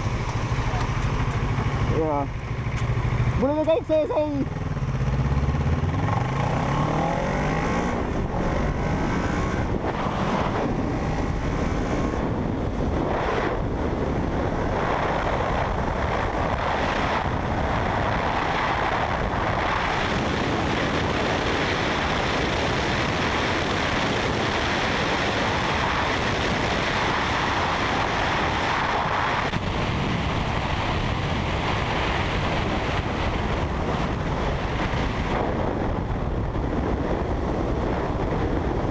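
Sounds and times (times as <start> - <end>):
motorcycle engine running: 0.0 - 38.9
wind rushing over microphone: 0.0 - 38.9.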